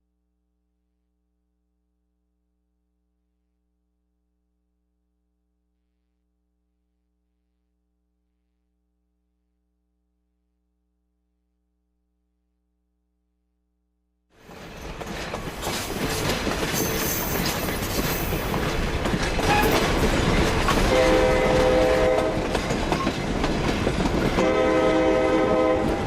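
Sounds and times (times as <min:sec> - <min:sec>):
train running on rails: 0:14.4 - 0:26.0
locomotive horn blasts: 0:20.8 - 0:22.5, 0:24.4 - 0:26.0.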